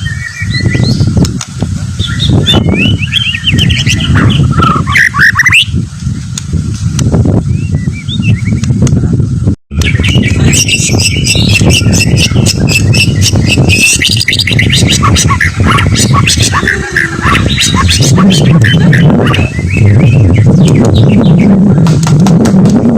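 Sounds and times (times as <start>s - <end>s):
bird singing whistles and trills: 0.0s - 1.2s, 2.0s - 5.8s, 7.4s - 8.8s, 9.8s - 21.6s
steady low rumble: 0.0s - 22.9s.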